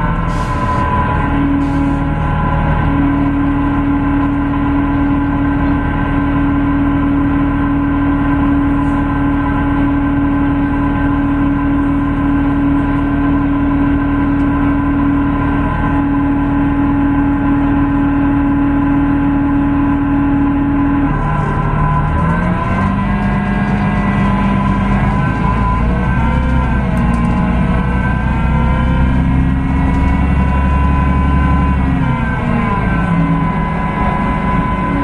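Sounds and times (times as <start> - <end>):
bus diesel engine running: 0.0 - 35.0
steady high whine: 20.0 - 35.0.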